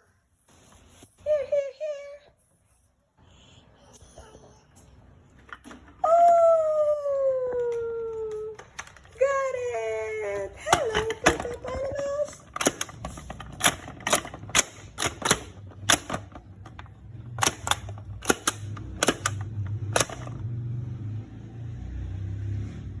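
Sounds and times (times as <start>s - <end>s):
plastic toys clicking: 7.5s - 9.4s, 10.3s - 20.4s.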